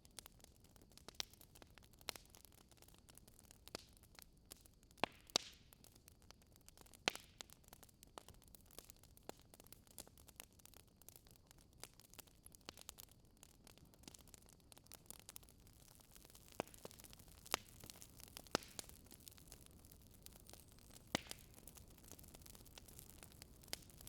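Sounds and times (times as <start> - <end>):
wood fire crackling: 0.1 - 24.0
sharp pops of fire: 5.0 - 5.7, 15.0 - 24.0.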